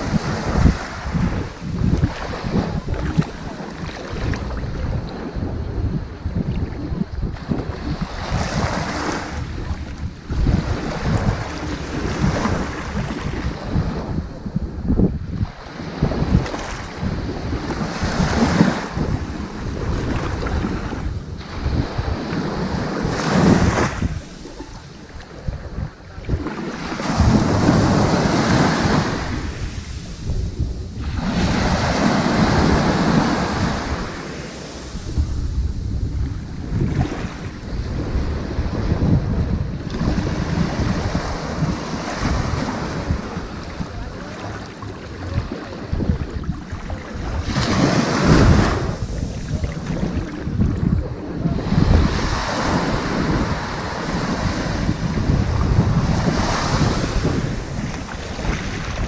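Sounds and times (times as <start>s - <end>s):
ocean waves washing onto beach: 0.0s - 59.0s
wind buffeting microphone: 0.0s - 59.0s
steady low rumble: 18.9s - 56.3s.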